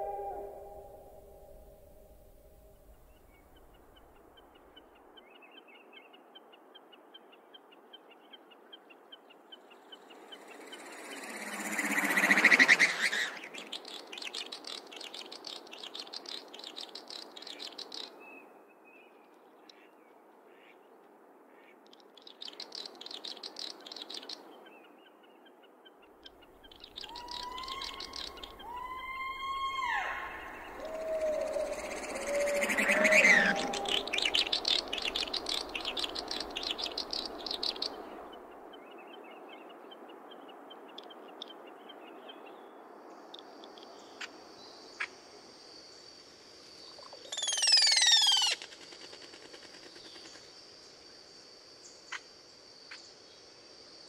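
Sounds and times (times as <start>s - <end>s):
short pitched bird calls: 0.0s - 0.9s, 47.2s - 48.6s
loud swells of noise: 10.1s - 13.6s, 28.5s - 38.3s.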